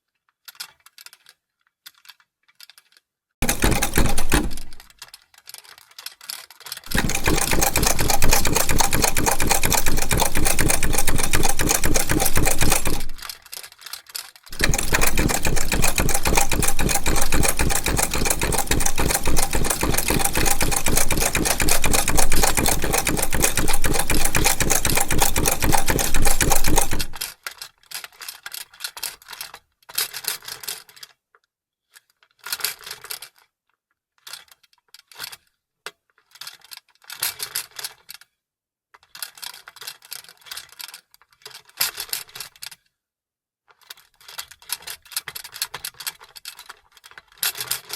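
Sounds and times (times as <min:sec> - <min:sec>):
sewing machine clattering: 0:03.4 - 0:04.9, 0:06.9 - 0:13.4, 0:14.5 - 0:27.2.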